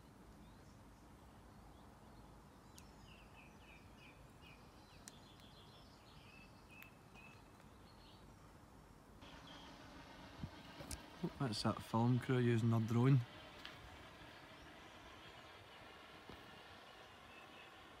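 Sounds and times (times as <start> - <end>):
small bird chirping: 0.0 - 8.6, 13.6 - 18.0.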